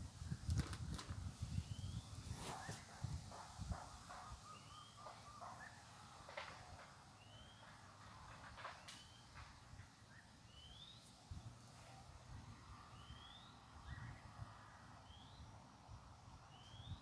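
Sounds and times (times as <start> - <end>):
bird whistling rising call: 10.1 - 11.0, 13.0 - 14.2.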